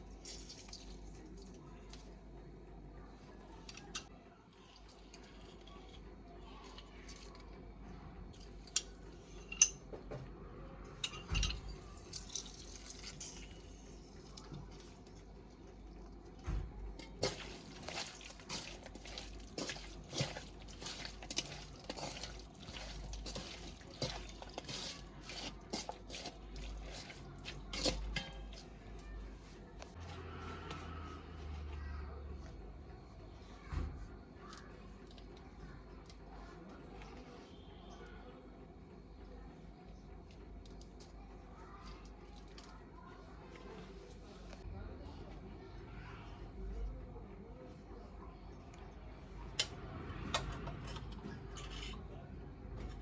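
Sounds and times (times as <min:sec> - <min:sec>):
bowl and utensils clinking: 0:10.9 - 0:13.9, 0:17.0 - 0:29.1.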